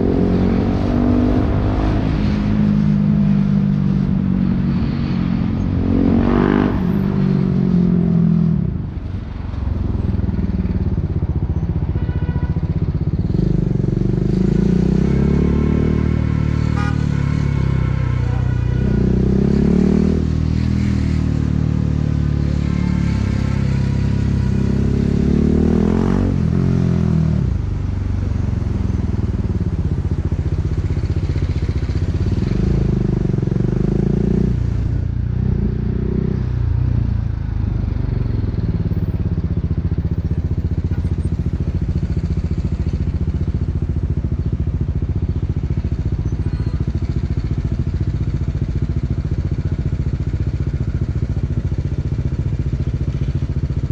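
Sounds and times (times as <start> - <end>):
motorcycle engine accelerating: 0.0 - 8.8.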